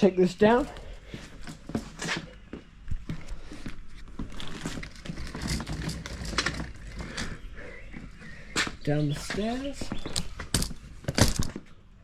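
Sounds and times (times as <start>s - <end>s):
hand truck wheels clattering: 4.6s - 7.4s.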